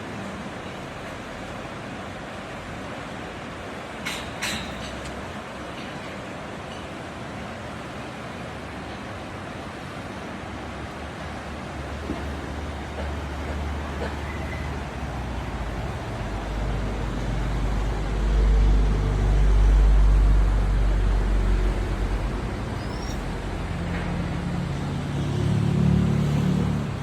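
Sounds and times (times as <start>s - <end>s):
vehicle engines in traffic: 0.0s - 27.0s.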